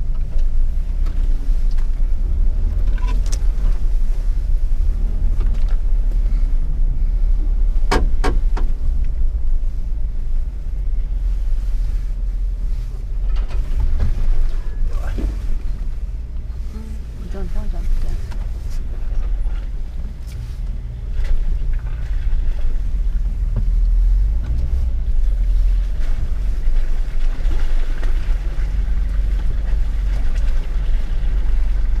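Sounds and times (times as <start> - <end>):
vehicle engine rumbling: 0.0 - 32.0
sharp knocks and clunks: 7.8 - 8.8.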